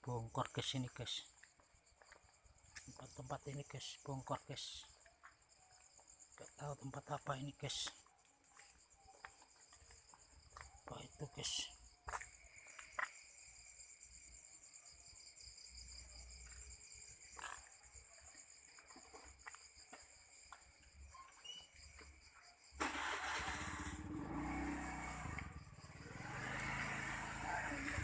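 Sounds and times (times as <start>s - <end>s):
crickets chirring: 0.0s - 28.0s
vehicle engine running: 23.6s - 28.0s.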